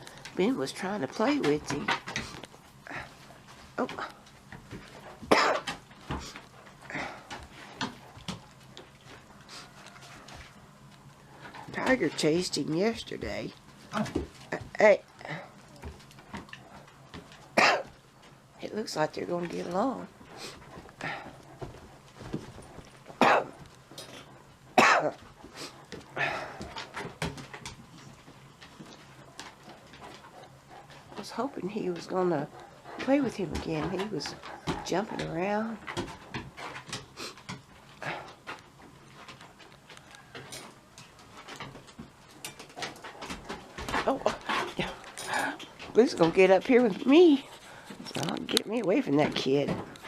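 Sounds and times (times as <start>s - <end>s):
person coughing: 5.3s - 5.7s, 17.6s - 17.9s, 23.2s - 23.5s, 24.8s - 25.2s
throat clearing: 5.3s - 5.7s.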